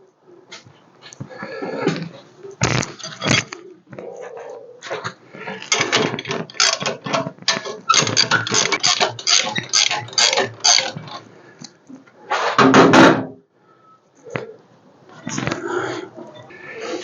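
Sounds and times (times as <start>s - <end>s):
rapid mechanical clicking: 5.5s - 11.8s.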